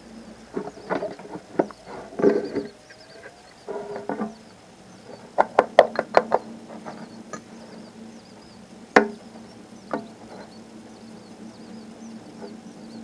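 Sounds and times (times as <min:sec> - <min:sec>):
rustle: 0:00.0 - 0:13.0
sharp knocks: 0:05.4 - 0:06.5, 0:09.0 - 0:09.2.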